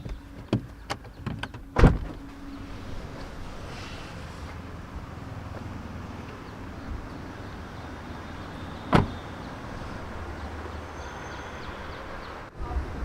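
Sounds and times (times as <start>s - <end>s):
car door slamming: 0.4s - 2.3s, 8.8s - 9.3s.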